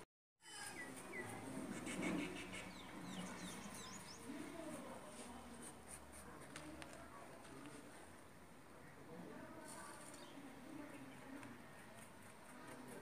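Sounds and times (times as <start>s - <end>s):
high bird chirps: 0.5s - 4.3s.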